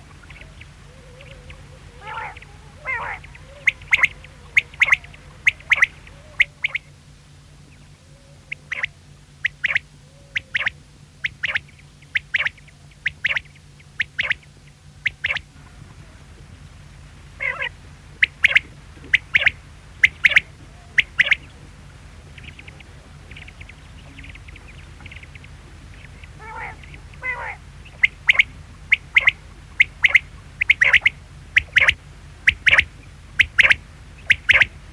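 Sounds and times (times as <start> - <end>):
quail calling: 0.0 - 7.0, 7.6 - 16.3, 17.3 - 34.9
steady low hum: 0.0 - 34.9.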